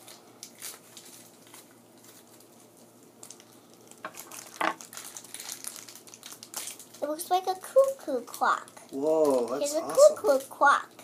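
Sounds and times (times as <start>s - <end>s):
plastic packaging crinkling and tearing: 0.0s - 10.6s.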